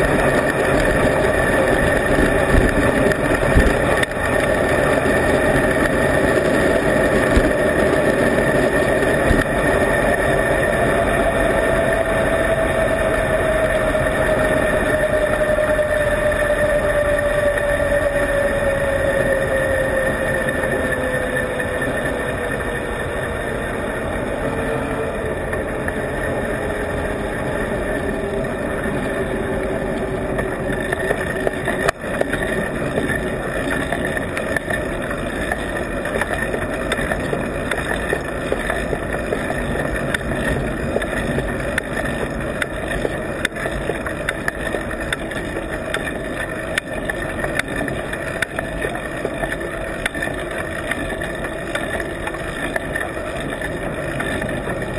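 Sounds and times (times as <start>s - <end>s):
road rumble: 0.0s - 54.9s
wind noise: 0.0s - 54.9s
mount rattling and ticking: 29.7s - 54.9s.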